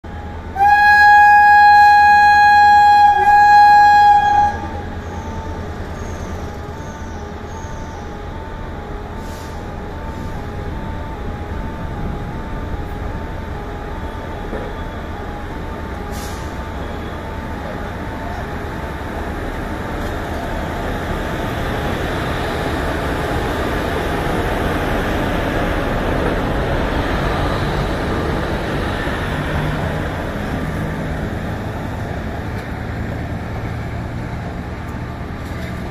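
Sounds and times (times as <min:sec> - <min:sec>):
train rumbling on rails: 0:00.0 - 0:35.9
train horn blast: 0:00.5 - 0:05.0.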